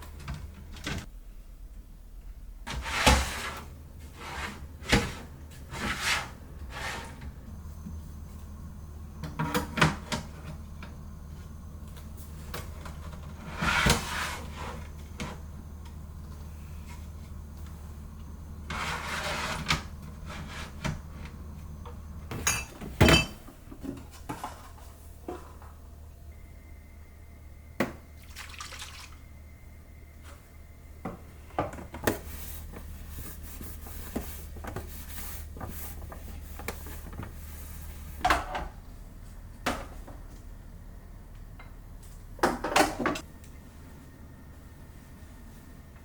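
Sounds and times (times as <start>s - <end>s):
dishes clinking and knocking: 22.3s - 23.6s.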